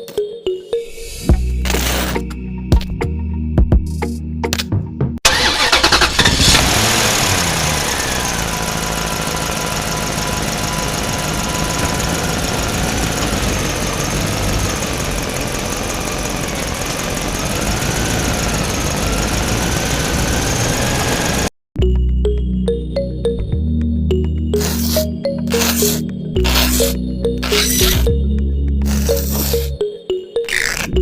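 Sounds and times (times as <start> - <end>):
small motor running with whine: 6.4 - 21.5, 24.6 - 28.1, 28.9 - 29.7.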